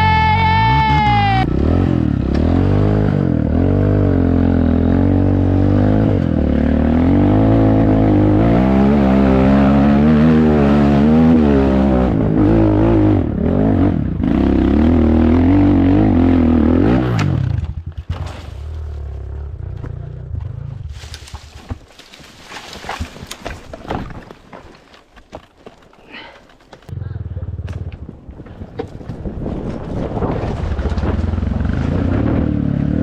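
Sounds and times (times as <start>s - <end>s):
motorcycle engine revving: 0.6s - 21.2s, 26.9s - 28.5s, 30.7s - 33.0s.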